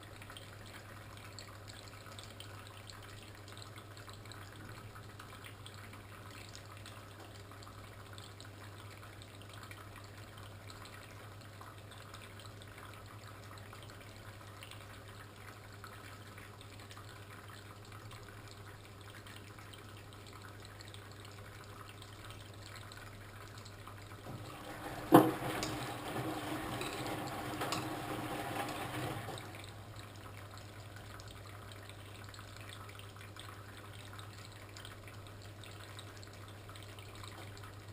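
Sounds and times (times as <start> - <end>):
water trickling: 0.0 - 37.9
water running in: 23.6 - 37.9
washing machine humming: 24.2 - 31.6.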